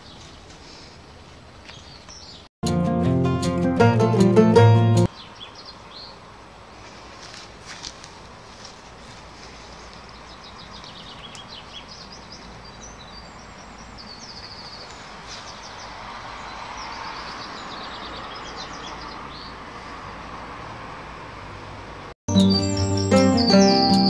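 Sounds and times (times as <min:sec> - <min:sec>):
small birds chirping and trilling: 0:01.6 - 0:02.5, 0:05.1 - 0:06.3, 0:09.3 - 0:20.3, 0:22.3 - 0:24.0.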